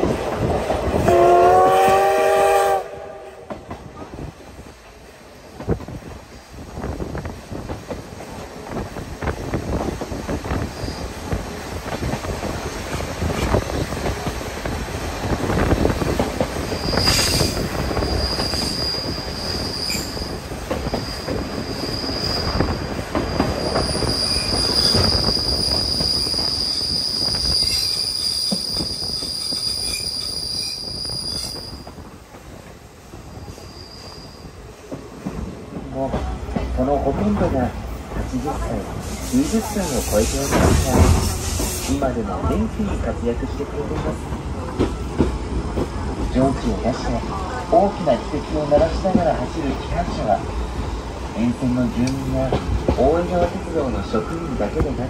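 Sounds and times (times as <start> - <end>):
train wheels rumbling and clattering: 0.0 - 55.0
high wheel squeal: 16.7 - 31.8, 33.4 - 34.6.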